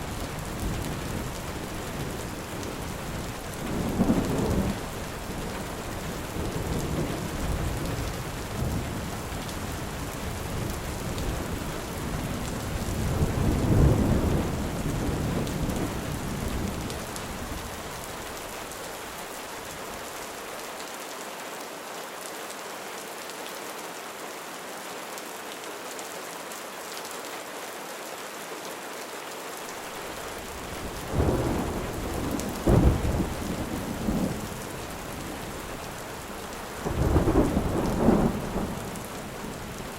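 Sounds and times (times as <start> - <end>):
heavy rain: 0.0 - 39.9
low thunder rumble: 30.3 - 35.6, 36.8 - 39.9
sharp thunder claps: 30.8 - 34.4.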